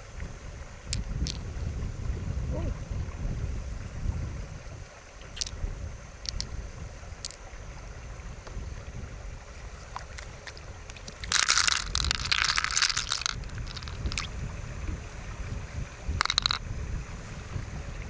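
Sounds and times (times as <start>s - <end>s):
wind rumble on microphone: 0.0s - 18.0s
crackling scraping noise: 9.6s - 14.3s.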